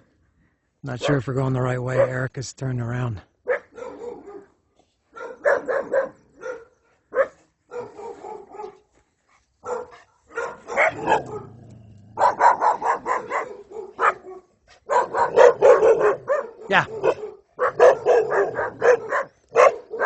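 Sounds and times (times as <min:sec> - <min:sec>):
dog barking: 0:01.0 - 0:01.3, 0:01.9 - 0:02.2, 0:03.4 - 0:08.8, 0:09.6 - 0:20.0.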